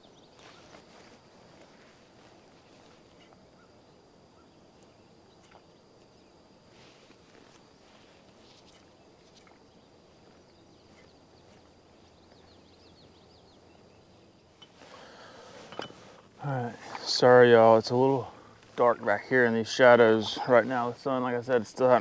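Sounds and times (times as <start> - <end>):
bird chirps: 7.8 - 16.0.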